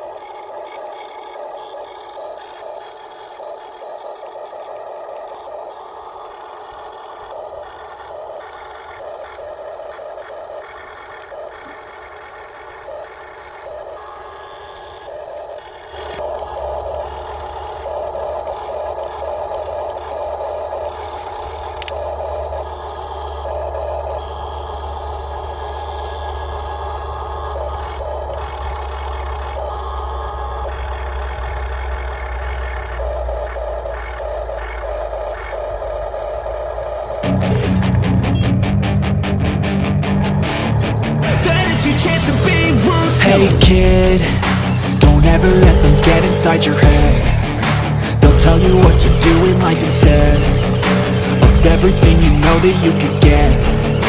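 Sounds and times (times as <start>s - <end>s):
toy truck motor and gear whine: 0.0s - 38.5s, 40.0s - 54.0s
short beeps: 38.3s - 38.6s.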